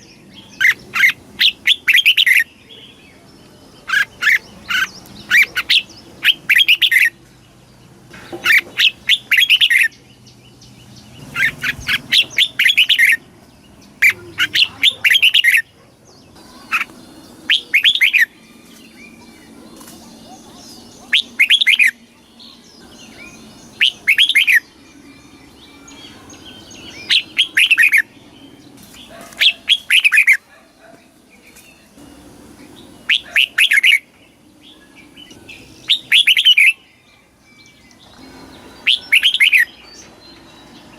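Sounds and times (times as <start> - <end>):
bulbul singing: 0.0 - 40.9
faint bird chirps: 13.9 - 40.9.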